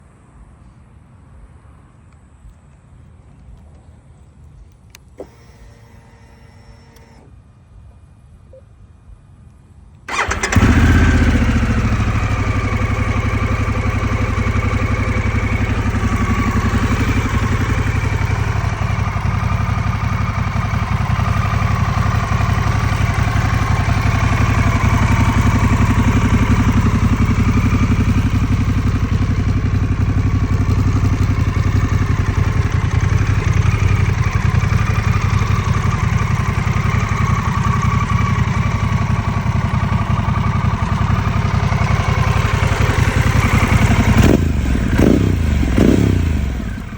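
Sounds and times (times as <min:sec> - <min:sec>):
motorcycle idling: 0:10.1 - 0:46.9.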